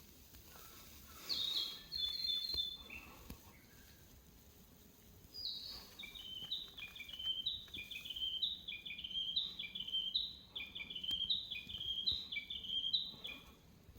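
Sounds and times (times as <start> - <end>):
small songbird singing: 1.1 - 4.0, 5.3 - 13.6.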